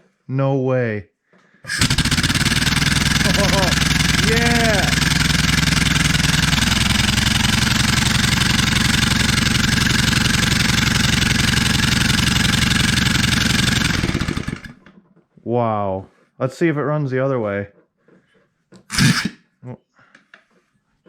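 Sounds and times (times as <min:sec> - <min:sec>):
air-powered engine running: 0:01.7 - 0:14.8, 0:18.9 - 0:19.4.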